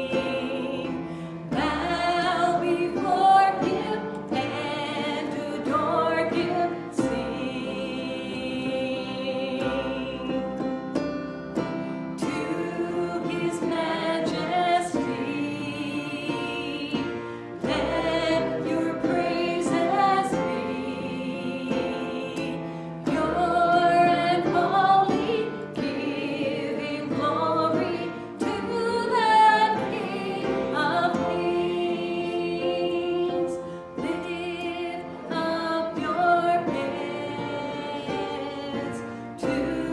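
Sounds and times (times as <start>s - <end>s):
group of voices singing: 0.0s - 39.9s
instrumental accompaniment: 0.0s - 39.9s.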